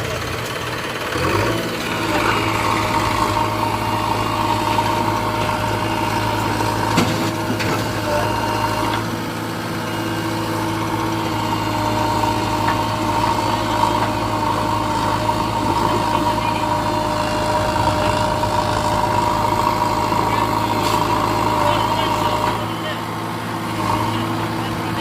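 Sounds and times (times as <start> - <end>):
diesel engine running: 0.0 - 25.0
high engine whine: 0.0 - 25.0.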